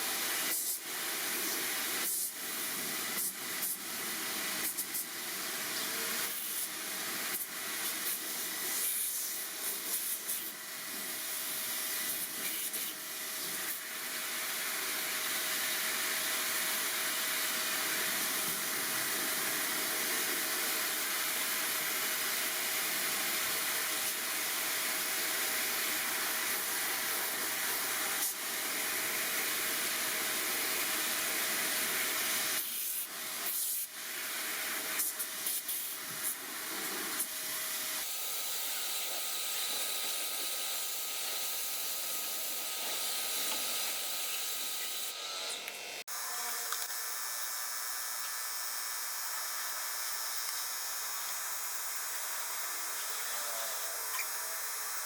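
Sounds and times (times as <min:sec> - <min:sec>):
high-pressure spray hissing: 0:17.6 - 0:45.1.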